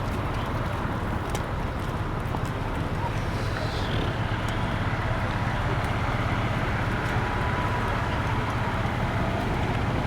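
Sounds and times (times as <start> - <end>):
low rumbling noise: 0.0 - 10.0.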